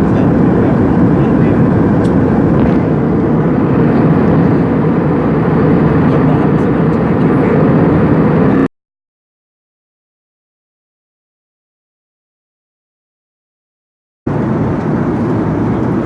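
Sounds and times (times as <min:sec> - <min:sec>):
airliner cabin engine noise: 0:00.0 - 0:08.7, 0:14.3 - 0:16.0.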